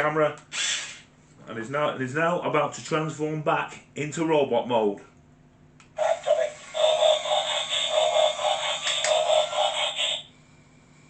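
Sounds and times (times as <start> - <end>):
electronic toy sound effect: 6.0 - 10.3.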